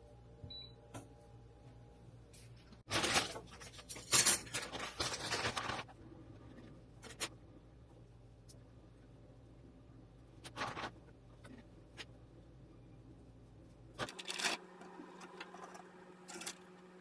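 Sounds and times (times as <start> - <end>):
rustling and scraping at a table: 10.4 - 12.2.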